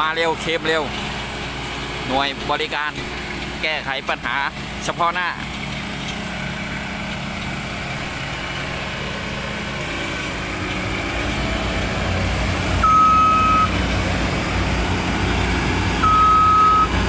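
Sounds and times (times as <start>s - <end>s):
diesel engine running: 0.0s - 17.0s
reverse warning beeps: 12.8s - 13.8s, 16.0s - 17.0s.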